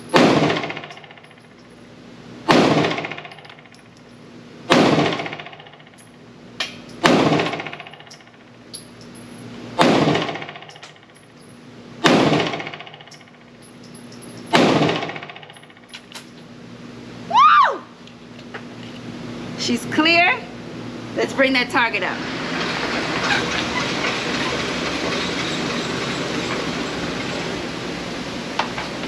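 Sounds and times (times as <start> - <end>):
pistol shots echoing indoors: 2.5 - 3.4, 4.7 - 5.7, 9.8 - 10.5, 12.0 - 13.1, 14.5 - 15.2.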